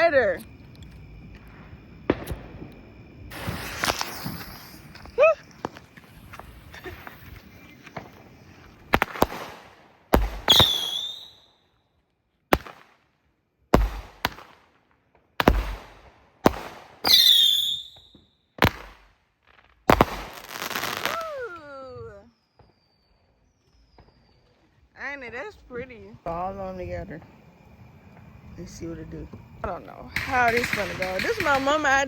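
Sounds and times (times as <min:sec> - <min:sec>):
fireworks bangs: 0:01.2 - 0:11.6, 0:12.5 - 0:13.0, 0:13.7 - 0:22.8, 0:25.2 - 0:32.0
falling firework whistle: 0:01.4 - 0:11.9, 0:15.4 - 0:19.1, 0:19.9 - 0:24.8.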